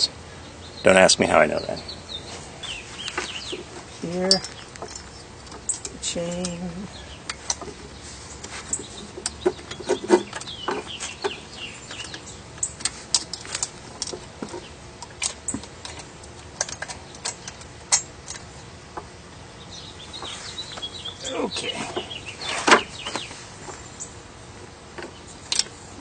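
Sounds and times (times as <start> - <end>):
bird calling: 0.0 - 13.6, 19.5 - 24.3.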